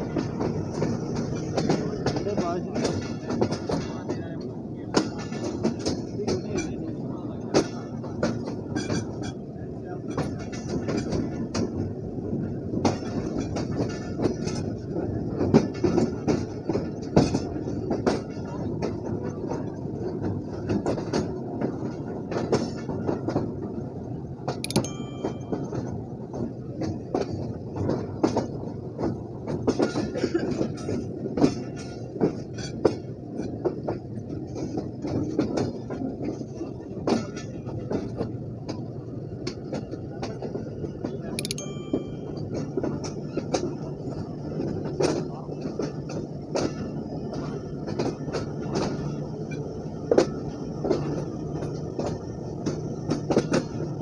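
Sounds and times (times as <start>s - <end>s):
diesel locomotive running: 0.0s - 54.0s
brief high-pitched sounds: 24.7s - 25.7s, 41.4s - 42.4s.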